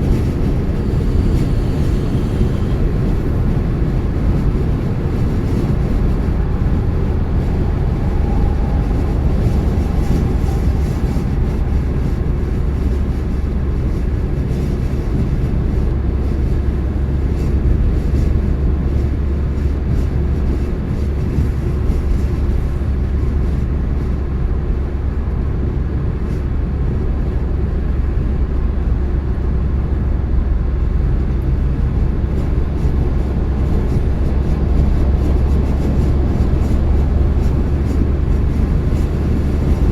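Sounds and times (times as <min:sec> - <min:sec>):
car driving steadily: 0:00.0 - 0:39.9.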